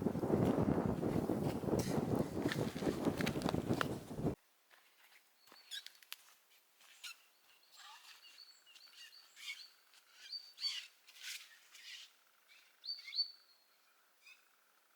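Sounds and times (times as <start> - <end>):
faint high bird chirps: 7.0 - 14.5.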